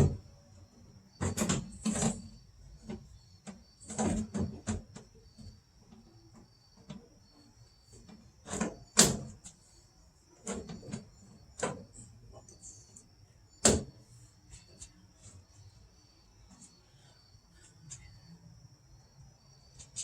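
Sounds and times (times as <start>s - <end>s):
knocks and scrapes on car door: 1.2s - 5.6s, 7.9s - 9.5s.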